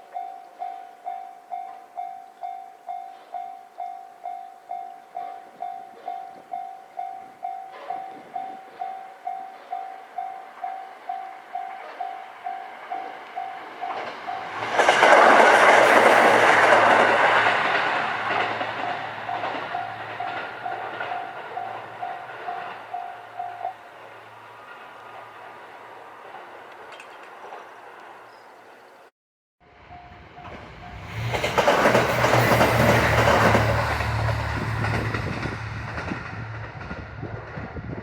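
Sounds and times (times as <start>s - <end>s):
train wheels clattering over rail joints: 12.8s - 28.2s, 30.5s - 38.0s
low engine hum: 30.0s - 38.0s.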